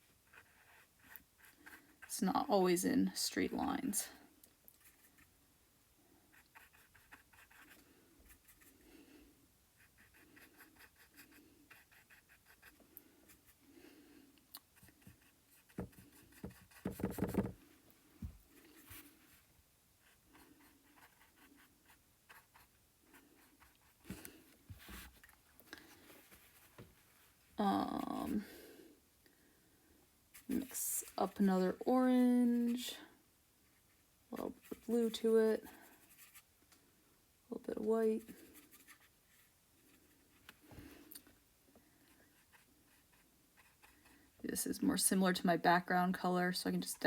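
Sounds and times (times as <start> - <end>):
paintbrush dabbing and scratching: 0.0 - 2.8, 6.3 - 8.8, 9.8 - 13.6, 14.6 - 17.6, 18.2 - 25.2, 30.3 - 32.9, 33.6 - 36.5, 37.8 - 40.4, 42.3 - 44.2.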